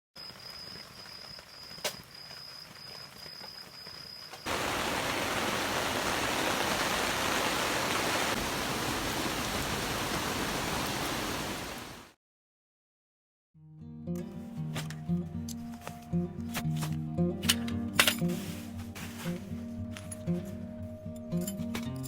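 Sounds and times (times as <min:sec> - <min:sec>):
heavy rain falling: 0:04.5 - 0:12.2.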